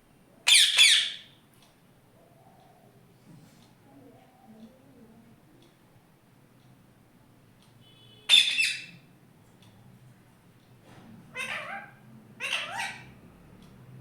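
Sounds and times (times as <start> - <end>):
parrot calling: 0.4 - 1.4, 8.3 - 9.1, 11.3 - 13.2.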